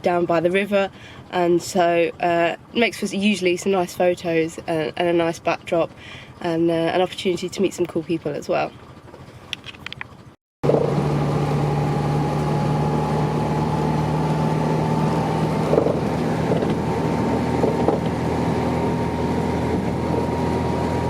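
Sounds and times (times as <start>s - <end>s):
car engine running: 0.0s - 21.0s
road noise: 8.5s - 21.0s.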